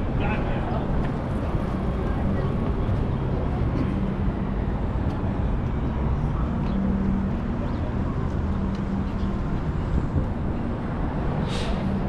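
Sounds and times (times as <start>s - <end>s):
low rumble of traffic: 0.0s - 12.0s
droning engine hum: 0.1s - 12.0s.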